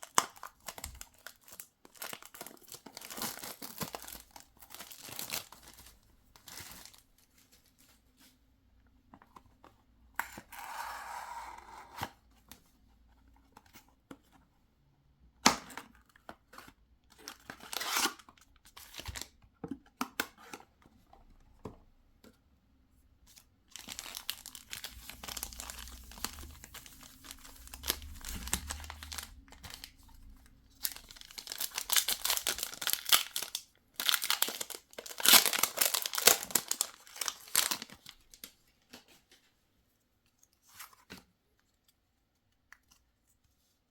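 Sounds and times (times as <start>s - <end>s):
plastic packaging crinkling: 0.0s - 7.8s, 23.7s - 38.5s.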